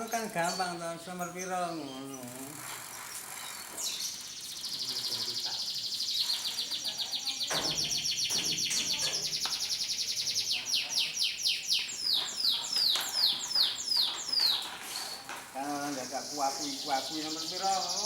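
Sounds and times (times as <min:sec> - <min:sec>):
canary singing: 0:00.0 - 0:18.0.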